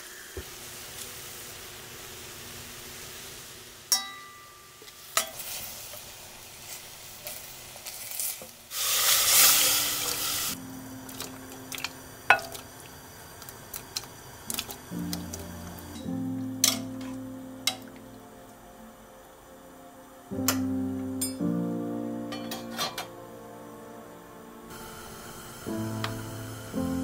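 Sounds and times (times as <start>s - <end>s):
meat sizzling in a pot: 0.0s - 18.2s, 24.7s - 27.0s
metal spoon clinking on pot: 3.9s - 5.4s, 12.3s - 12.6s, 16.6s - 17.1s
loud hissing rush: 8.7s - 16.2s, 24.7s - 27.0s
soft music: 9.3s - 13.0s, 14.8s - 27.0s.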